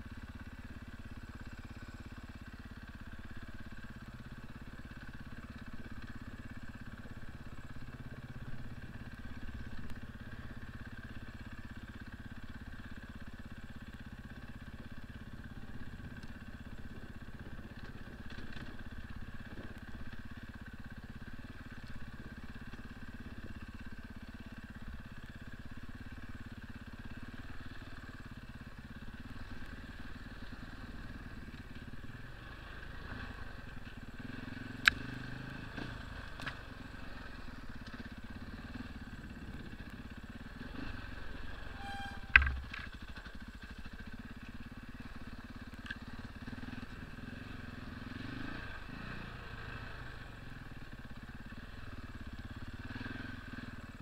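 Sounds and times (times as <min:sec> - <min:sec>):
motorcycle engine running: 0:00.0 - 0:54.0
motorcycle knocking over rough ground: 0:42.2 - 0:43.5.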